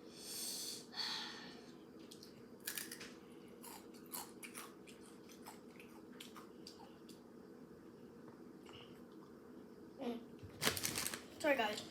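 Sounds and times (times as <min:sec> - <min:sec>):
chewing crunchy chips: 0:02.2 - 0:07.2.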